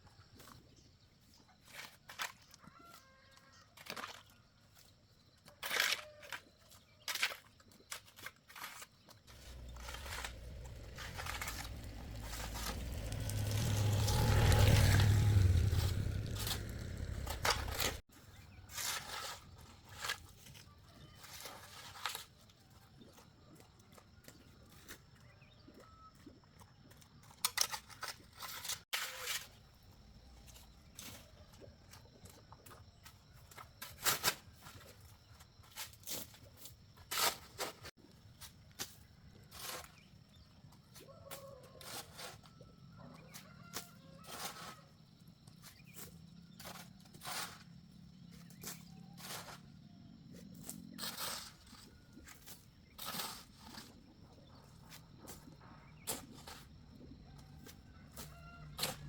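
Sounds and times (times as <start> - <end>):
low rumble: 9.4 - 18.0.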